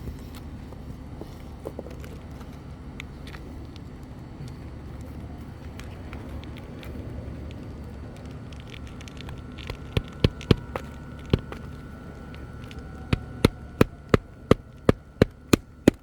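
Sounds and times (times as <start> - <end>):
low steady rumble: 0.0 - 16.0
hammer blows on shingle roof: 9.6 - 11.8, 12.9 - 16.0.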